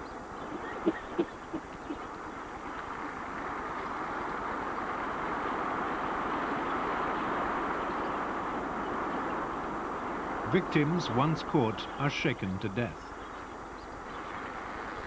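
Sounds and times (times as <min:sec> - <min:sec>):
flamingo flock calling: 0:00.4 - 0:02.1.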